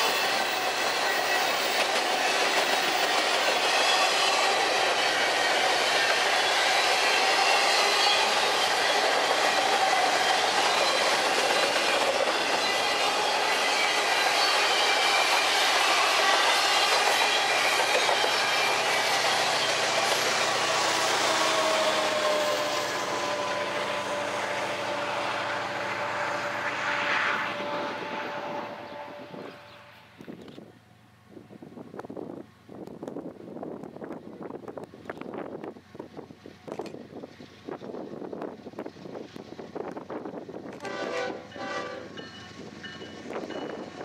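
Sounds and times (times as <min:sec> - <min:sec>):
freight cars rolling with clickety-clack: 0:00.0 - 0:28.2, 0:32.8 - 0:44.0
high wheel squeal: 0:00.0 - 0:30.0.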